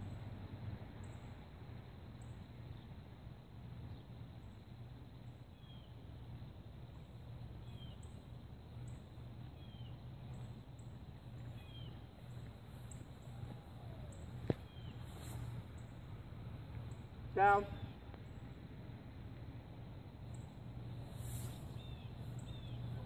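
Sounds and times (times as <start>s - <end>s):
steady low hum: 0.0s - 23.0s
bird chirping: 7.6s - 16.1s, 20.3s - 23.0s.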